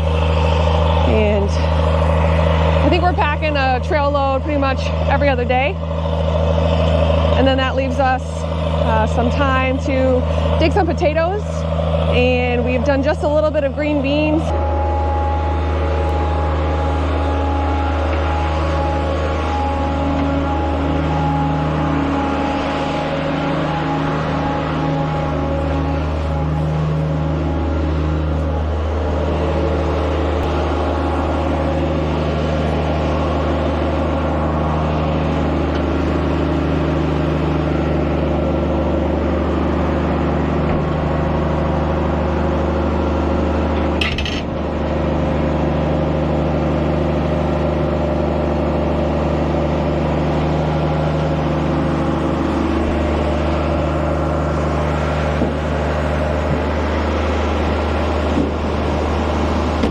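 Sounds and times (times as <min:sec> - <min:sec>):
harvester engine droning: 0:00.0 - 0:59.9.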